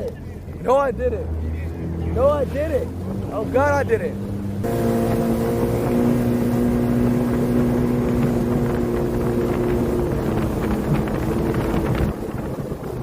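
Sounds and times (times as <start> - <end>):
watercraft engine running: 0.0 - 13.0
wind on microphone: 0.3 - 13.0.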